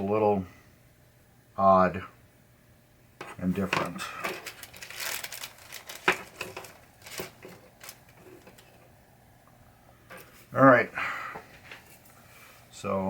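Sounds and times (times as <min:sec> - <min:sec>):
plastic parts rustling and crinkling: 0:03.3 - 0:08.9.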